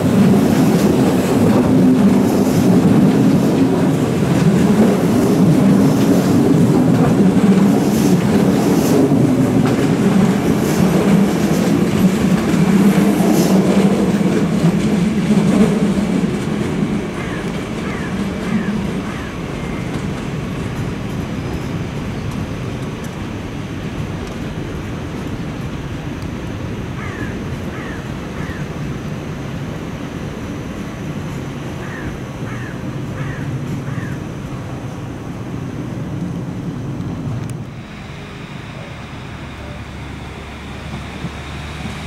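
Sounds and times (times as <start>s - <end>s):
wheels clacking over rail joints: 0.0s - 27.9s
electric train rumbling: 0.0s - 42.0s.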